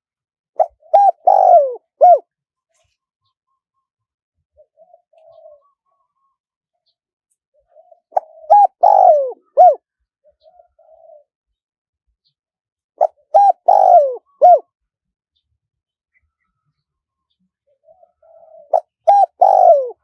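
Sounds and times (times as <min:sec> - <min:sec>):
dove cooing: 0:00.6 - 0:02.3, 0:04.6 - 0:06.3, 0:07.6 - 0:11.3, 0:13.0 - 0:14.7, 0:17.7 - 0:20.0.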